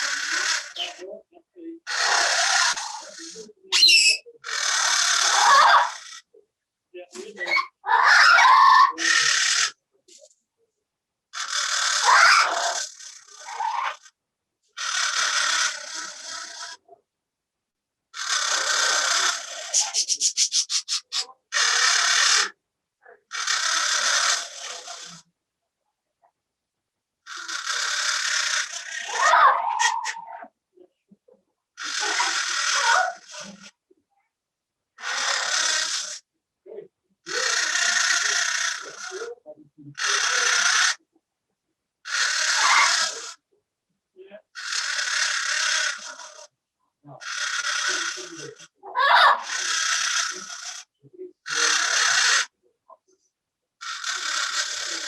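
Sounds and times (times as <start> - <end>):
parrot squawking: 0.0 - 1.1, 1.8 - 6.3, 7.2 - 9.8, 11.4 - 14.1, 14.8 - 16.8, 18.2 - 22.6, 23.3 - 25.2, 27.3 - 30.5, 31.8 - 33.7, 35.0 - 36.2, 37.3 - 41.0, 42.0 - 43.4, 44.6 - 46.5, 47.2 - 52.5, 53.8 - 55.0.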